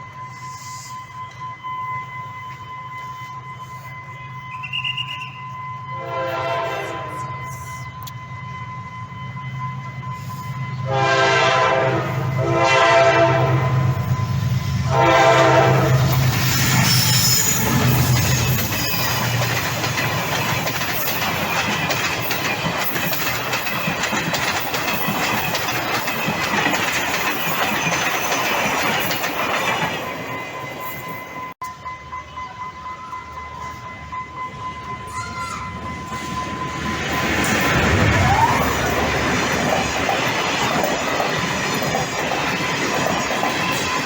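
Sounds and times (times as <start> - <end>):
train horn blasts: 0.0 - 17.9
train engine rumble: 0.0 - 44.0
train wheels clattering on rails: 15.4 - 31.5, 35.1 - 44.0.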